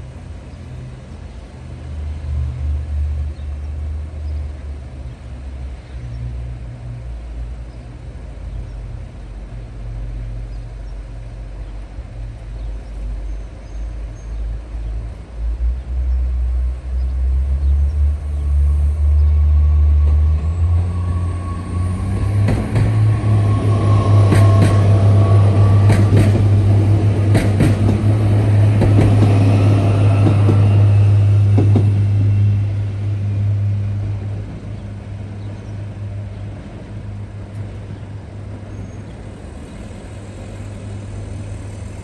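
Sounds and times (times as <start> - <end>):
train engine drone: 0.0 - 42.0
train wheels clacking on rail joints: 22.0 - 32.4.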